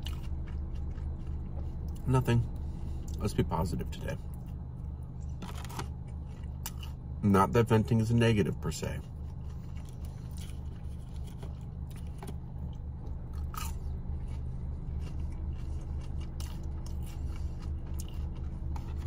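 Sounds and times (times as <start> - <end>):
person chewing and biting: 0.0 - 3.3, 4.2 - 7.2, 9.0 - 19.0
steady low hum: 0.0 - 19.0.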